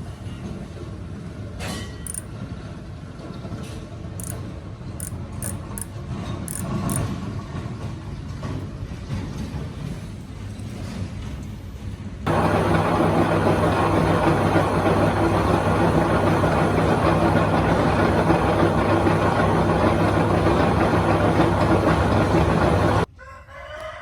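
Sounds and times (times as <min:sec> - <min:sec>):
low mechanical rumble: 0:12.3 - 0:23.1.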